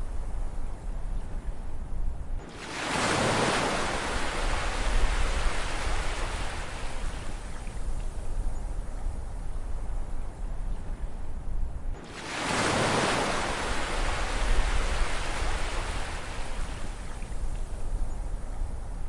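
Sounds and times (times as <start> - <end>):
low rumble of sea: 0.0 - 19.0
wave breaking: 2.5 - 7.2, 12.0 - 16.6.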